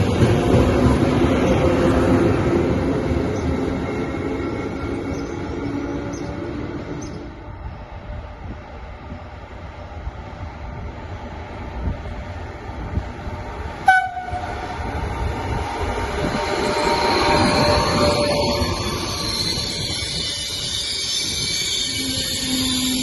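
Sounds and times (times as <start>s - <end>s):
train rumbling: 0.0s - 23.0s
train horn toot: 13.8s - 14.6s.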